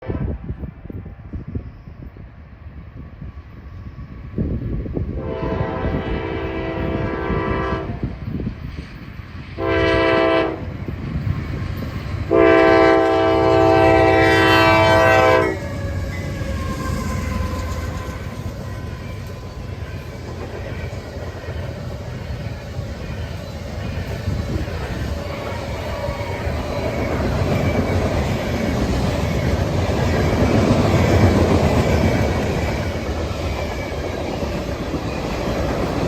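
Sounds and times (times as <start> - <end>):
train air horn: 0.0 - 0.5, 5.1 - 8.2, 9.6 - 10.7, 12.3 - 20.1
freight train rumbling past: 0.0 - 36.0.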